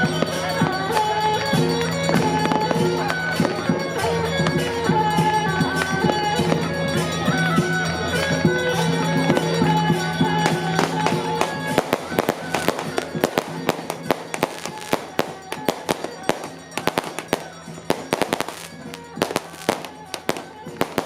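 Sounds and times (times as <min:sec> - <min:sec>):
firecrackers cracking and banging: 0:00.0 - 0:21.0
procession music on wind instruments: 0:00.0 - 0:21.0.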